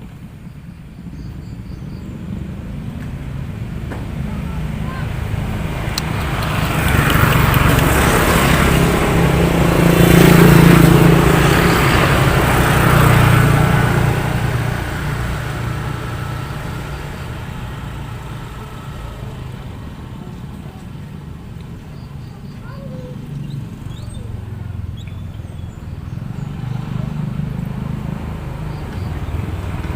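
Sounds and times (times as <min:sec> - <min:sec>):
motor vehicle passing by: 0:00.0 - 0:29.9.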